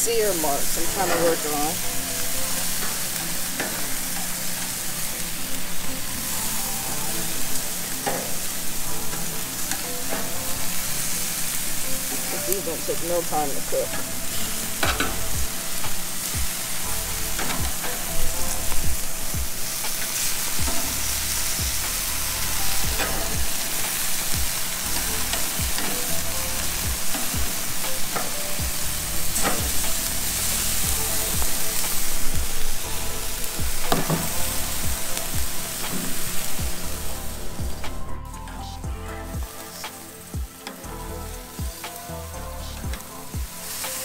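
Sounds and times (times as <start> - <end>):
chicken sizzling: 0.0 - 44.0.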